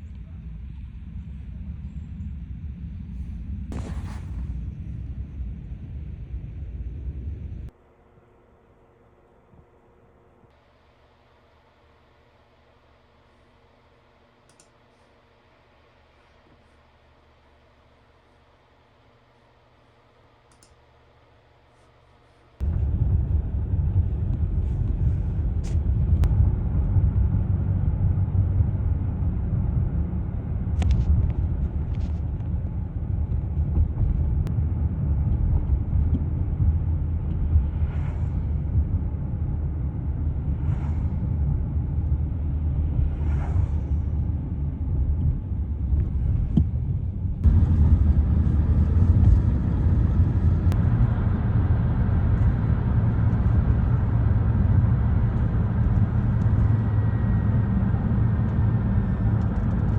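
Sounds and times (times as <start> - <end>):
low rumble with hiss: 0.0 - 59.9.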